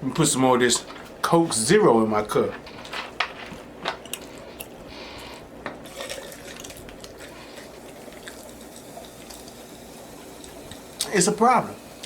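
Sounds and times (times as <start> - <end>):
soda pouring into cup: 5.8 - 12.0
soda fizzing hiss: 7.6 - 12.0.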